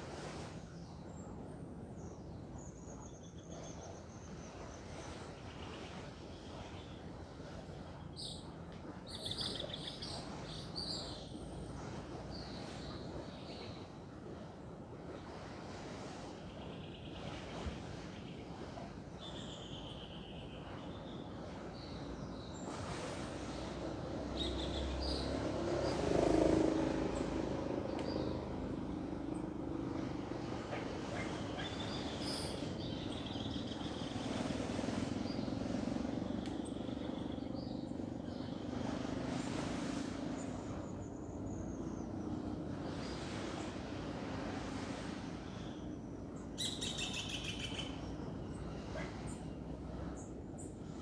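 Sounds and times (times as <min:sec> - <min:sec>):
ocean waves washing: 0:21.4 - 0:46.6.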